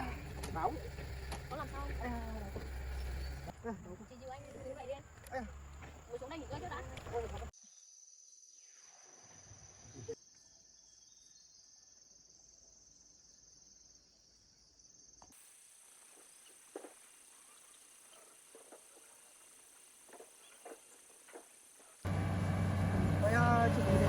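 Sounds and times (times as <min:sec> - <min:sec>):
high-pitched insect trill: 0:04.2 - 0:21.9.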